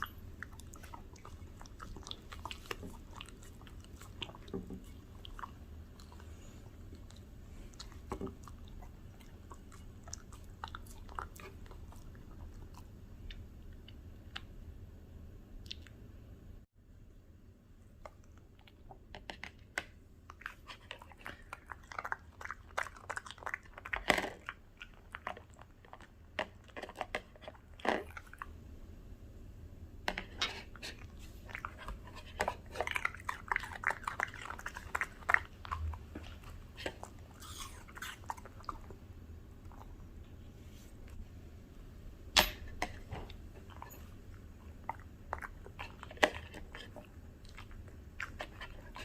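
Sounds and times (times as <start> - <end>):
dog chewing crunchy food: 0.0 - 12.9, 20.3 - 28.5, 30.7 - 40.0, 43.0 - 49.0.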